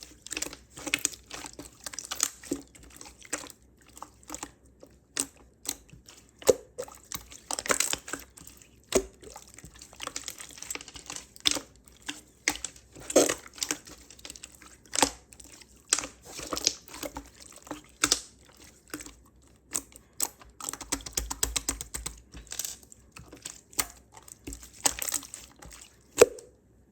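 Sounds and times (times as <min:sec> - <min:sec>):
slime sticky clicks and crackles: 0:05.1 - 0:26.4.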